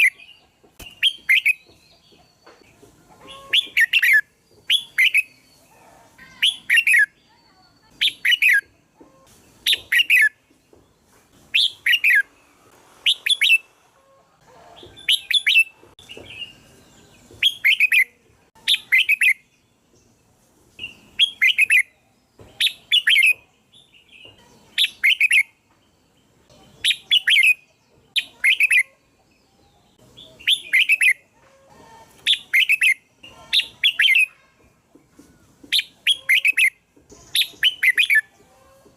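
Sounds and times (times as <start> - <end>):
bird warbling song: 20.8 - 31.3, 32.2 - 34.6, 35.7 - 38.9.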